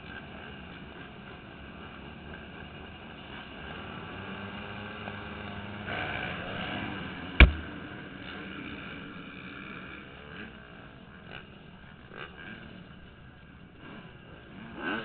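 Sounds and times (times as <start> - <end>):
motocross bike engines: 0.0 - 15.0
sharp knock: 7.4 - 7.7.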